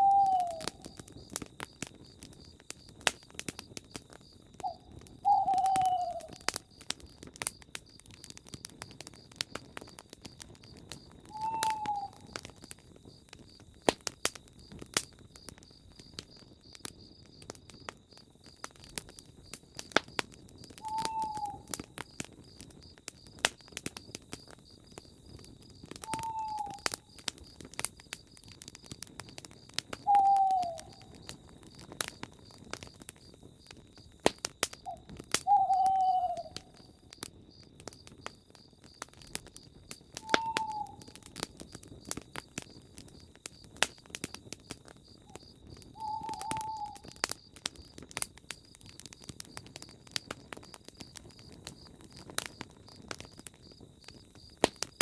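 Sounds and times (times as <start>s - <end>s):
night bird hooting: 0.0s - 1.0s, 4.6s - 6.6s, 11.3s - 12.4s, 20.8s - 21.9s, 26.0s - 27.1s, 30.0s - 31.2s, 34.9s - 37.0s, 40.2s - 41.3s, 45.9s - 47.2s
campfire crackling and popping: 0.0s - 55.0s
insect trill: 0.0s - 55.0s.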